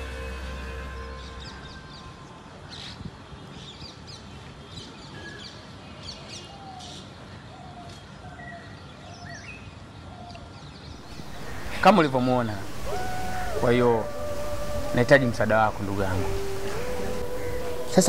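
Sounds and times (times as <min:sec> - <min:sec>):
birds chirping: 0:11.0 - 0:18.0
steady background hiss: 0:11.0 - 0:18.0.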